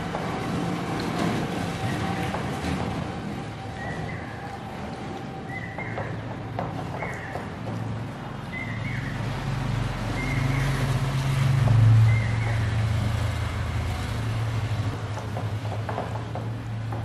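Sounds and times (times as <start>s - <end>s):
low motor hum: 8.5s - 15.2s.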